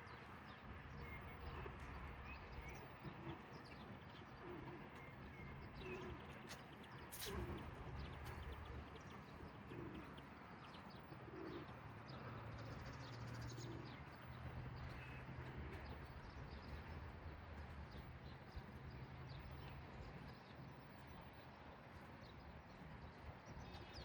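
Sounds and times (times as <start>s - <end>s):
low city hum: 0.1s - 24.0s
pigeons cooing: 7.2s - 12.1s.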